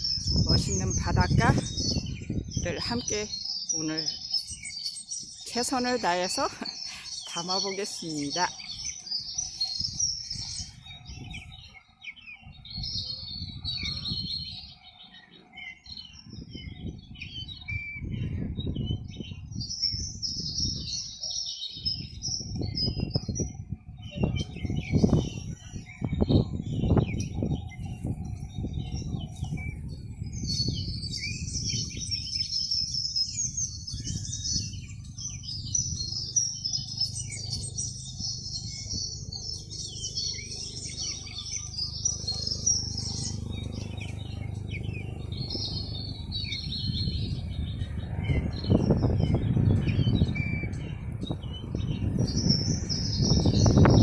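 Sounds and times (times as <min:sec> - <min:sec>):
small birds chirping: 0:00.0 - 0:54.0
low rumbling noise: 0:22.0 - 0:54.0.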